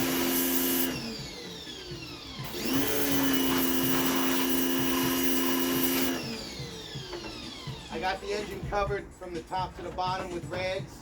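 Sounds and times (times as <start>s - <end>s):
pressure washer motor whine: 0.0s - 8.6s.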